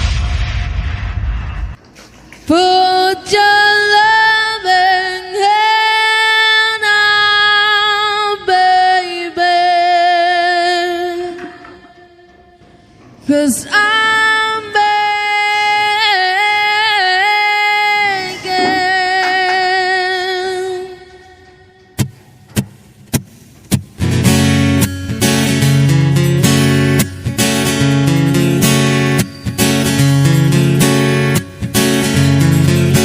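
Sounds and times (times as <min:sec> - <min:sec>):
woman singing with vibrato: 0:02.5 - 0:22.0.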